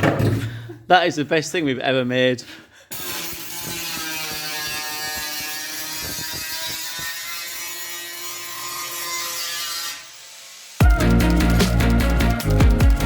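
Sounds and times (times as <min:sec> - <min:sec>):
workshop tool whirring: 0:02.9 - 0:10.8.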